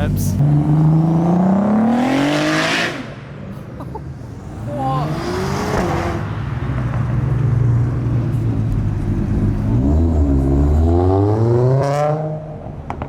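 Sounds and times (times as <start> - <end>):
car engine revving: 0.0 - 3.2.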